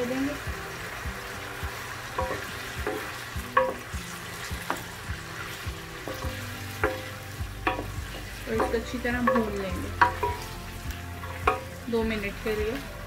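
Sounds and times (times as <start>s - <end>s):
chicken sizzling in oil: 0.0s - 13.0s
wooden spoon knocking against pan: 2.2s - 3.9s, 6.1s - 10.5s, 11.4s - 11.7s.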